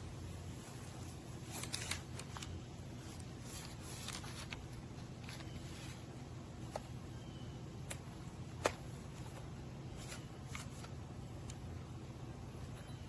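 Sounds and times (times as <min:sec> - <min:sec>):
low steady hum: 0:00.0 - 0:13.0
light handling clicks and rustles: 0:00.6 - 0:06.0.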